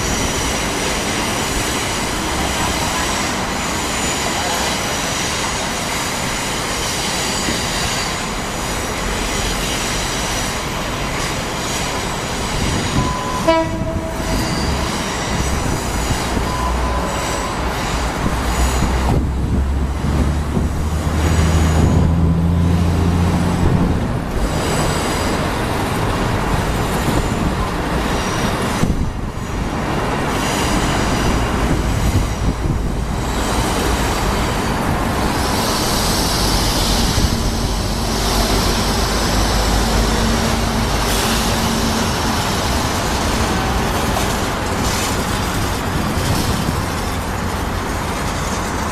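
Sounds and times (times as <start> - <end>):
high wheel squeal: 0.0 - 20.1, 21.0 - 23.8, 24.4 - 48.9
wheel and rail noise: 0.0 - 48.9
train horn blast: 13.0 - 15.0.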